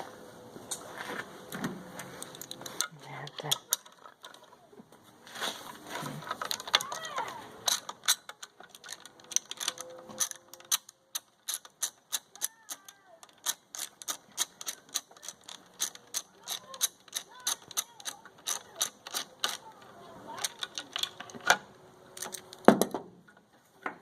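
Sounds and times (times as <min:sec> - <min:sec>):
ratchet wrench clicking: 0:07.6 - 0:19.6.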